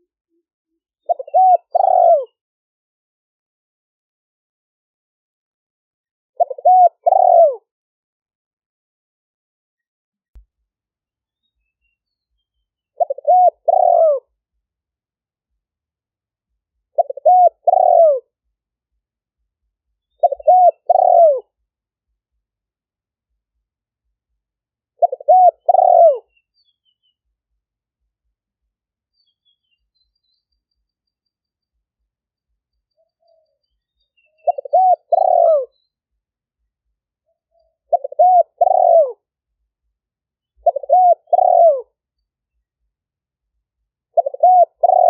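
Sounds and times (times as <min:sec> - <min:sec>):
dove cooing: 0:01.0 - 0:02.4, 0:06.4 - 0:07.6, 0:13.0 - 0:14.3, 0:16.9 - 0:18.3, 0:20.2 - 0:21.5, 0:25.0 - 0:26.3, 0:34.3 - 0:35.8, 0:37.8 - 0:39.2, 0:40.6 - 0:42.0, 0:44.2 - 0:45.0.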